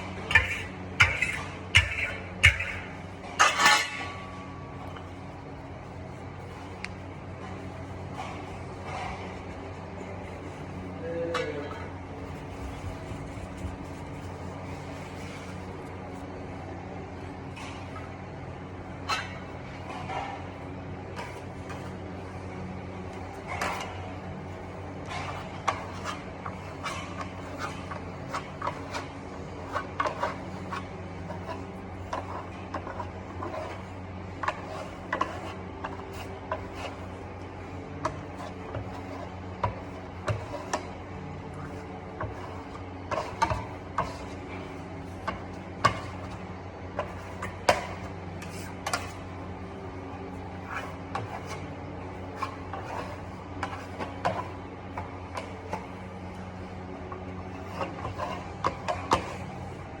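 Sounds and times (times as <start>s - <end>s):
plastering tools clicking and scraping: 0.0s - 5.2s, 23.1s - 49.4s
steady low hum: 0.0s - 60.0s.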